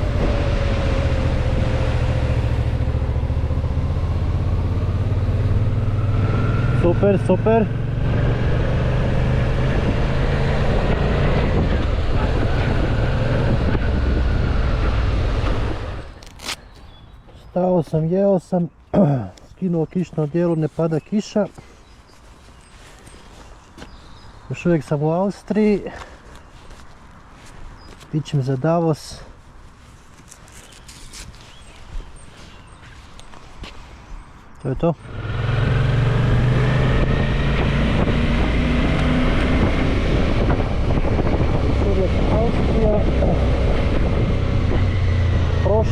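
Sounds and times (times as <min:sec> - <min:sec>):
wind noise on microphone: 0:00.0 - 0:06.7, 0:07.9 - 0:16.6, 0:35.1 - 0:45.9
motorcycle engine: 0:00.0 - 0:16.5, 0:35.0 - 0:45.9.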